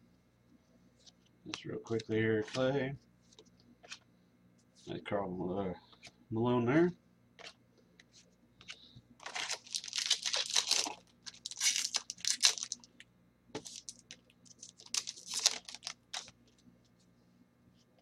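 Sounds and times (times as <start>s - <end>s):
foil wrapper tearing and crinkling: 9.2s - 13.0s, 13.6s - 16.3s.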